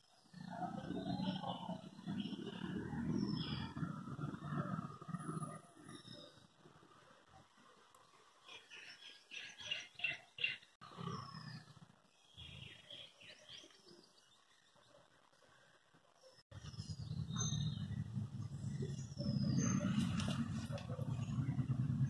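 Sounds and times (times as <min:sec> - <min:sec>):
songbirds chirping: 0:00.0 - 0:22.0
low steady rumble: 0:16.6 - 0:22.0.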